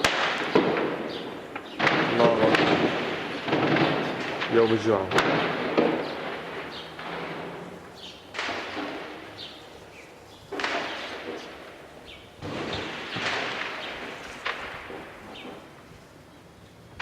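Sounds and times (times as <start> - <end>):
heavy explosion blasts: 0.0 - 16.0
sharp crack: 0.0 - 16.0.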